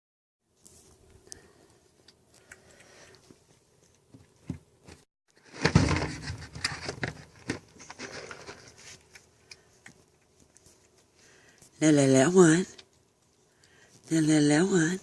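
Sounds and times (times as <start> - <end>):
cat chewing and lapping: 0.7 - 4.4, 7.9 - 11.8, 12.6 - 14.1
rustling and clattering: 3.8 - 11.7.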